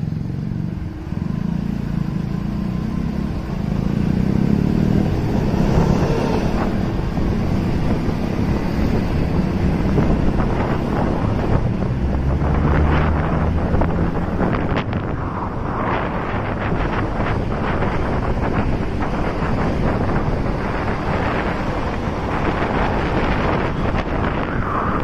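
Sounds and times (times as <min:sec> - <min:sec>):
motorcycle engine running: 0:00.0 - 0:11.8
wind buffeting microphone: 0:00.4 - 0:25.0.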